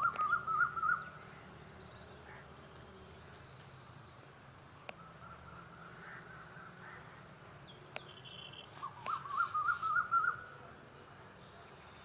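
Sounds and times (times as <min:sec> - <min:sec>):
warbling bird call: 0:00.0 - 0:01.1, 0:08.8 - 0:10.4.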